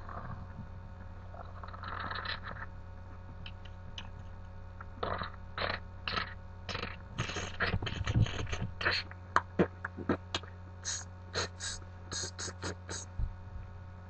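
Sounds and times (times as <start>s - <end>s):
low electrical hum: 0.0s - 14.0s
man making vocal mouth sounds: 4.9s - 13.3s.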